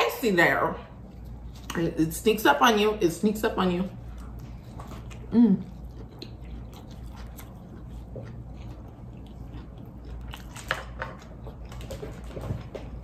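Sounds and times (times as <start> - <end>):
chewing with wet clicks and smacks: 3.9 - 13.0.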